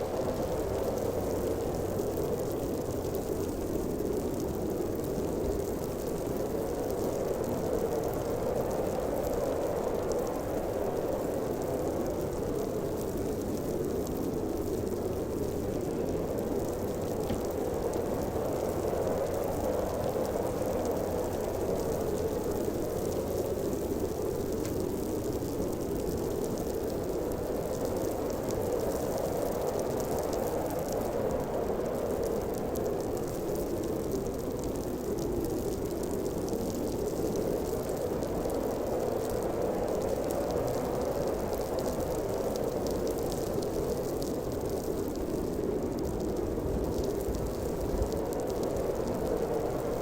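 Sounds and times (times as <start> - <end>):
snowstorm wind blowing: 0.0 - 50.0
faint ticks: 16.6 - 31.0.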